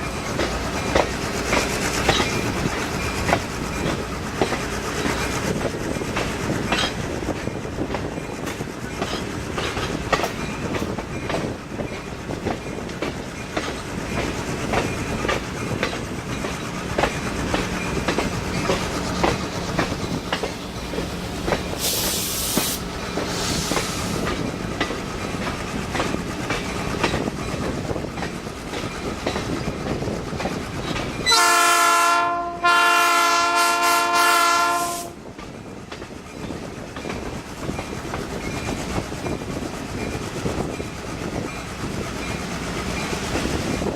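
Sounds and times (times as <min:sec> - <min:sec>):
train wheels clickety-clack: 0:00.0 - 0:43.9
brief hiss: 0:21.8 - 0:24.2
locomotive horn blasts: 0:31.3 - 0:35.2.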